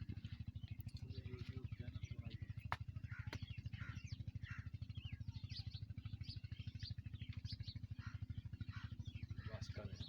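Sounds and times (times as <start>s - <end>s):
small birds chirping: 0.0s - 10.0s
tractor diesel engine idling: 0.0s - 10.0s.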